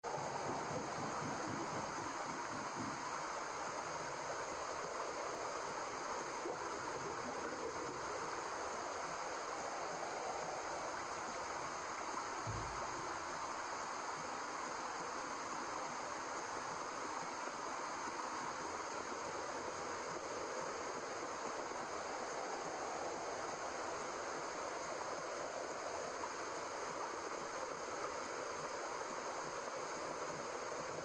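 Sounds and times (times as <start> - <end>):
white noise hiss: 0.0 - 31.0
low thump: 12.4 - 13.0.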